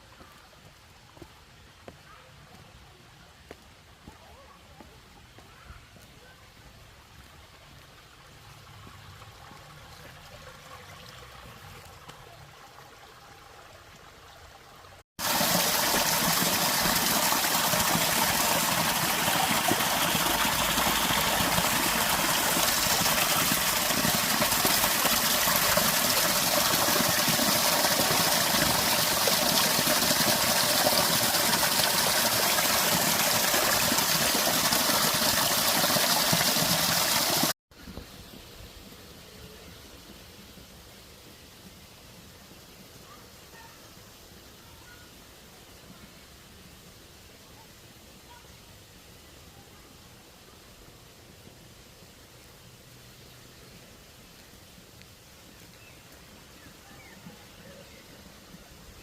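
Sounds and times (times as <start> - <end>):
faint outdoor sound: 0.0 - 59.0
flowing water rushing: 7.0 - 38.9.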